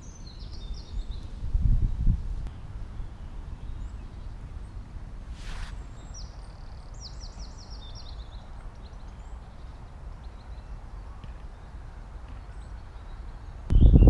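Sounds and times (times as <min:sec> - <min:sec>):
songbird chirping: 0:00.0 - 0:14.0
brief hiss: 0:05.3 - 0:06.0.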